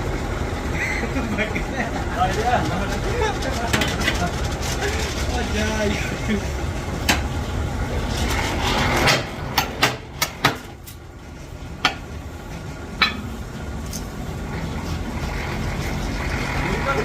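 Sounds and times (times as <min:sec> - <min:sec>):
steady low rumble: 0:00.0 - 0:17.0
sharp metallic clanks: 0:13.0 - 0:14.0.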